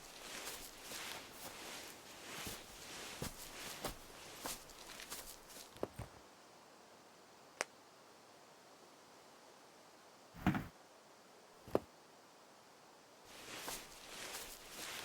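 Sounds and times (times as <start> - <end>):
dull heavy thump: 10.4 - 10.7.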